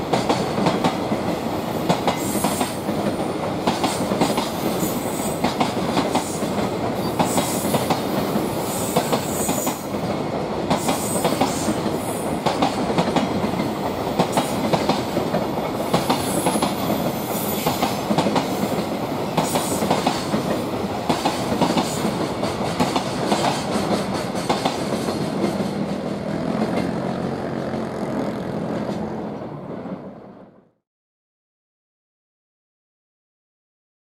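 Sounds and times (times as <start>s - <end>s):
freight train wheels clattering: 1.9s - 27.2s.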